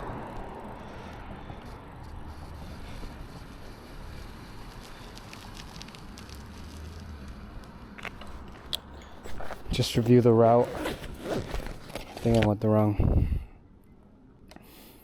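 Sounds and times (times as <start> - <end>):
road noise: 0.0 - 14.5
wind rumble on microphone: 12.9 - 13.5.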